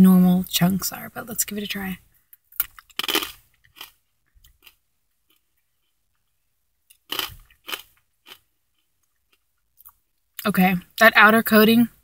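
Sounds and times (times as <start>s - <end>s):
person chewing crunchy pretzel: 2.4s - 6.3s, 6.9s - 10.2s.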